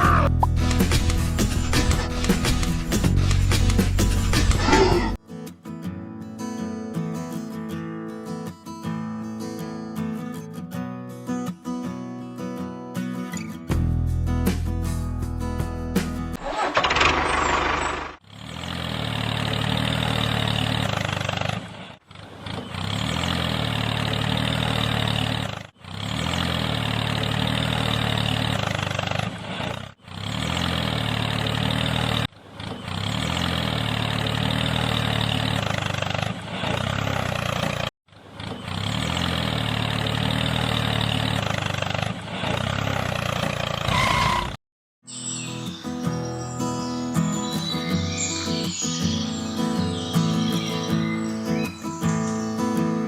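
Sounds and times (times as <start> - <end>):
small motor running: 16.4 - 18.2.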